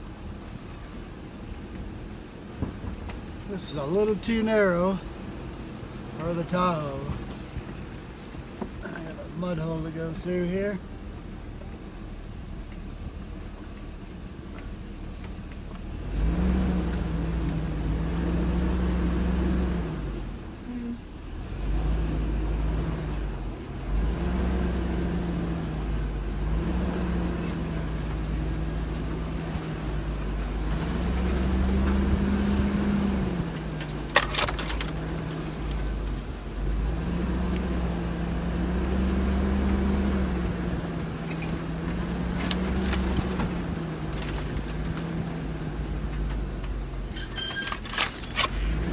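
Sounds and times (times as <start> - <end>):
truck engine revving: 15.9 - 48.9
sharp clatter: 47.1 - 48.8.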